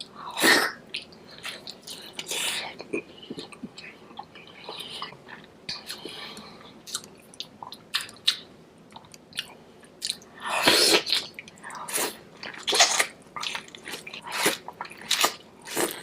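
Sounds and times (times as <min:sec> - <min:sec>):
mouth chewing clicks and smacks: 0:06.9 - 0:10.3.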